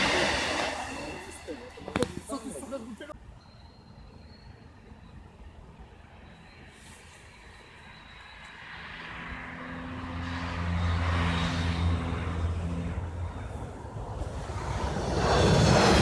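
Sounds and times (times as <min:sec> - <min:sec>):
steady low drone: 0:00.0 - 0:02.9
passenger train approaching: 0:00.0 - 0:16.0.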